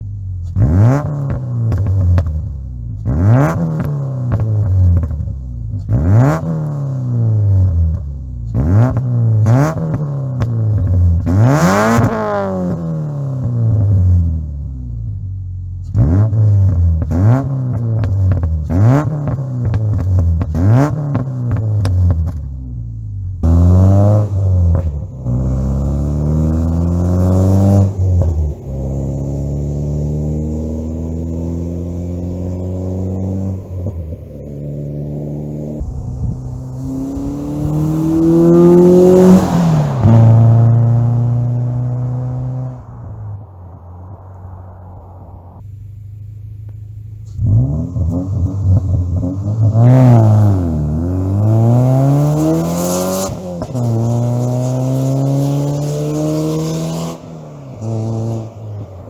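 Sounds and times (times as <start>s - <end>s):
car engine revving: 0.0s - 59.0s
exhaust crackling: 0.0s - 59.0s
car engine idling: 31.8s - 47.6s.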